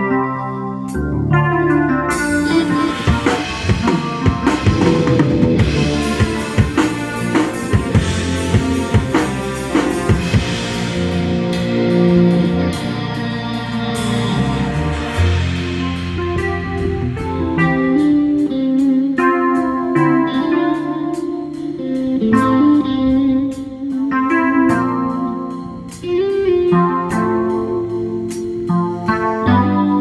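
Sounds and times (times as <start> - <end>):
keyboard and bass chords: 0.0 - 30.0
live band playing: 0.0 - 30.0.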